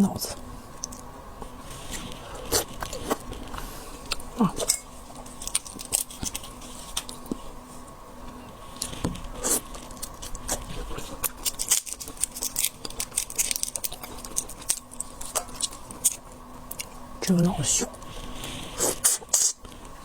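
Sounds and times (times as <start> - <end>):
shrimp shells cracking: 5.2 - 7.2, 11.2 - 17.0.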